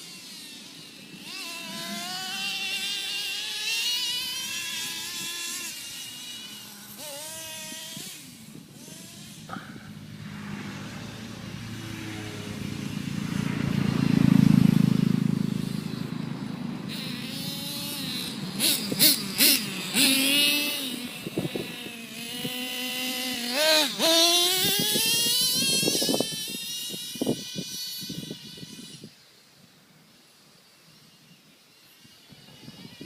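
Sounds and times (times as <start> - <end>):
toy truck motor whining: 0.0 - 9.8, 16.9 - 29.2
loud rushing noise: 9.4 - 17.1.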